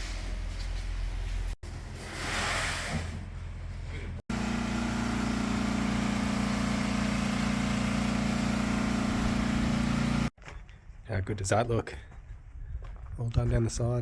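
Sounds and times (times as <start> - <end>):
engine running steadily: 3.7 - 10.3.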